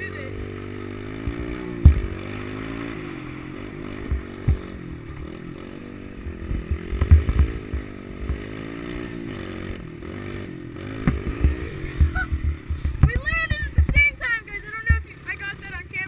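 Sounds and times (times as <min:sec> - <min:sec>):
pit bike engine revving: 0:00.0 - 0:16.0
low thumps and clatter: 0:01.1 - 0:03.0, 0:03.8 - 0:05.4, 0:06.2 - 0:08.7, 0:10.9 - 0:14.2.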